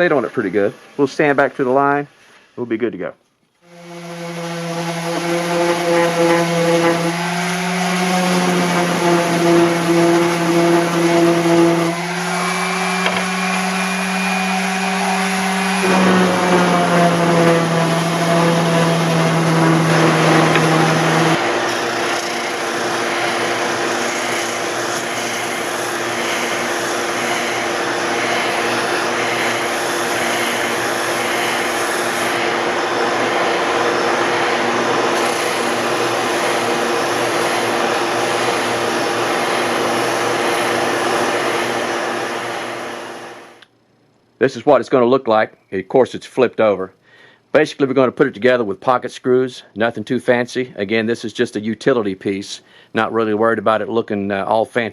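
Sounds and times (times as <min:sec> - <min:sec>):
electric sander motor: 0:03.7 - 0:43.6
abrasive rasping on wood: 0:03.8 - 0:30.7.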